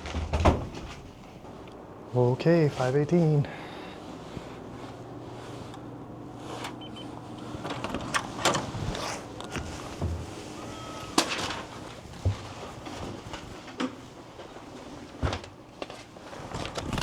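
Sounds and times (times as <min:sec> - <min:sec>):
low steady hum: 0:00.0 - 0:13.2
brief electronic tone: 0:06.8 - 0:07.6, 0:09.0 - 0:11.4.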